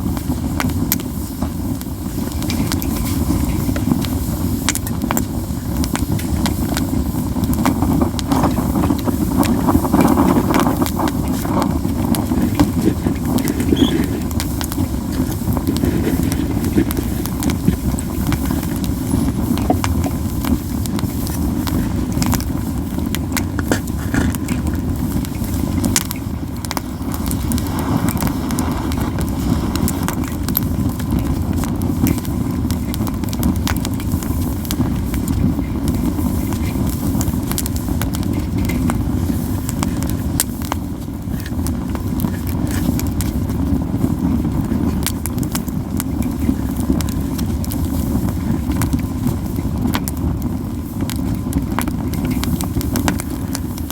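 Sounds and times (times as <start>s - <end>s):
campfire crackling and popping: 0.0s - 53.9s
low fire rumble: 0.0s - 53.9s.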